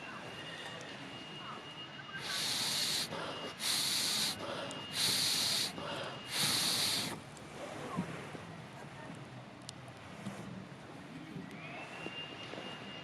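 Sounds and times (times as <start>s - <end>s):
air puffs blown into fire: 2.2s - 7.2s.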